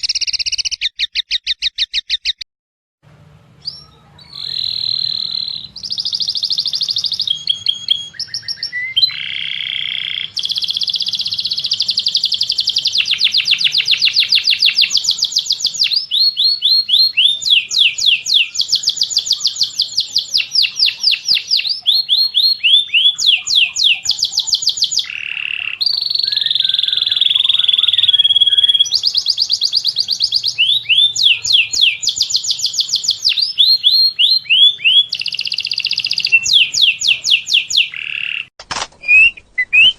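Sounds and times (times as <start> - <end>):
songbird chirps and trills: 0.0 - 2.4, 3.3 - 39.9.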